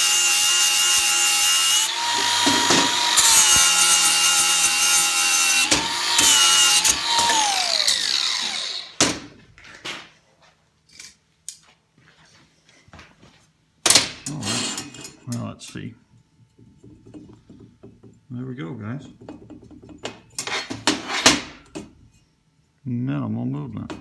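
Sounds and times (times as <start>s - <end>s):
angle grinder grinding steel: 0.0s - 9.0s, 14.3s - 15.0s.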